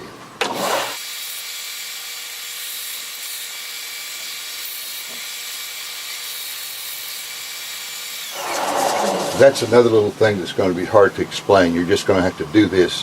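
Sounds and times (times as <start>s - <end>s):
power sander hissing: 8.2s - 10.2s.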